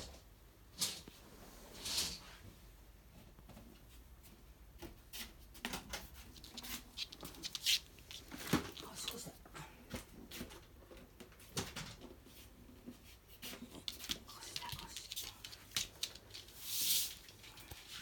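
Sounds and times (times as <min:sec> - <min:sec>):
dog moving clicks and rustles: 0:05.7 - 0:09.4, 0:13.5 - 0:18.0.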